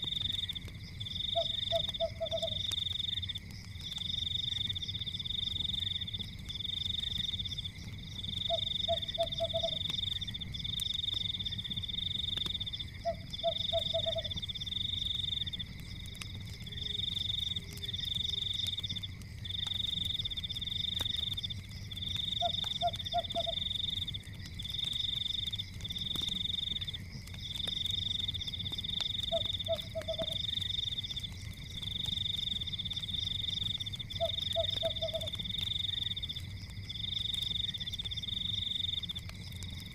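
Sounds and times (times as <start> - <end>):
fireplace crackling: 0.0 - 39.9
high insect trill: 0.0 - 39.9
frog croaking: 1.3 - 2.7, 8.4 - 9.9, 13.0 - 14.4, 22.4 - 23.7, 29.2 - 30.4, 34.2 - 35.4.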